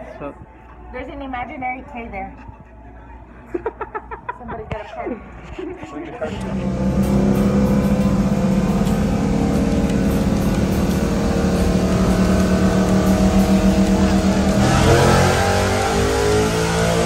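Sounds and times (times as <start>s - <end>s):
car engine revving: 6.3s - 17.0s.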